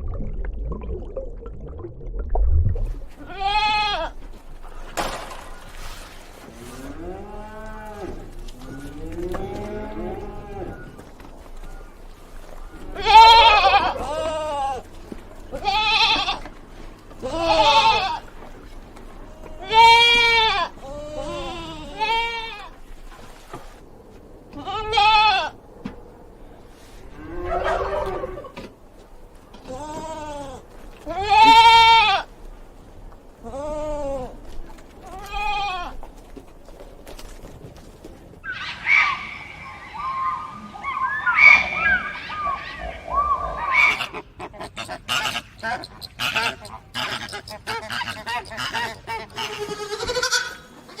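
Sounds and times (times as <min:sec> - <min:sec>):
goats bleating: 0:03.1 - 0:04.2, 0:07.1 - 0:10.8, 0:13.0 - 0:14.9, 0:15.5 - 0:16.5, 0:17.1 - 0:18.3, 0:19.3 - 0:22.8, 0:29.6 - 0:32.3, 0:33.4 - 0:36.0, 0:48.5 - 0:51.0.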